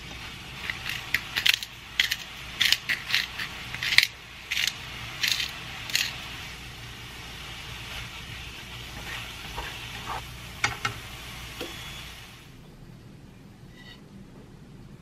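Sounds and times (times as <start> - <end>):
food sizzling in frying pan: 0.0 - 12.6
chopsticks scraping a pan: 0.6 - 6.4, 8.8 - 10.3.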